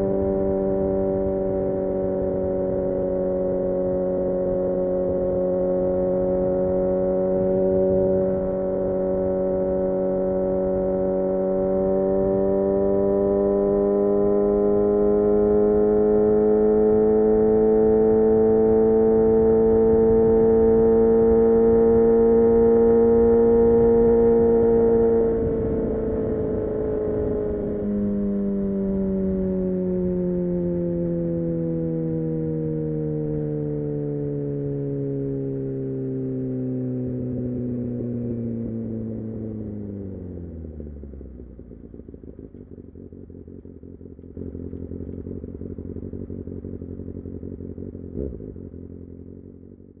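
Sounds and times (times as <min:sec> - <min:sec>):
motorcycle engine running: 0:00.0 - 0:50.0
motorcycle engine idling: 0:37.0 - 0:50.0.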